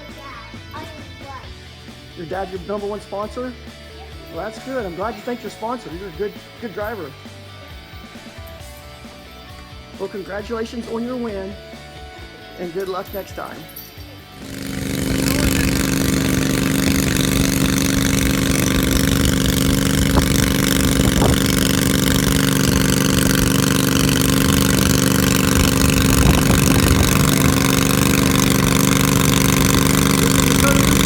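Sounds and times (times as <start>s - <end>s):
garden tractor engine running: 14.4s - 31.0s.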